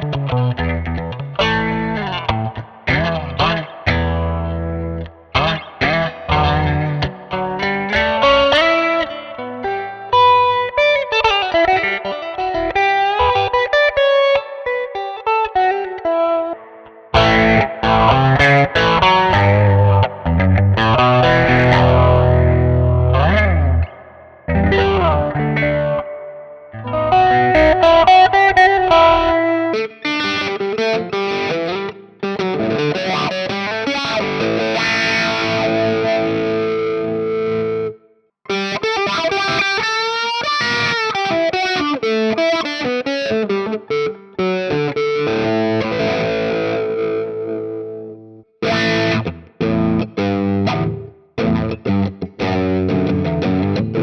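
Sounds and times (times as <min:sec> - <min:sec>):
electric guitar playing: 0:00.0 - 0:54.0.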